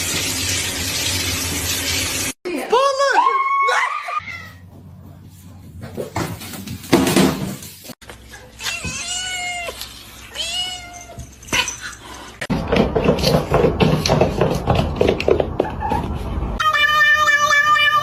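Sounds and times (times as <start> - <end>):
cat meowing: 16.6 - 18.0.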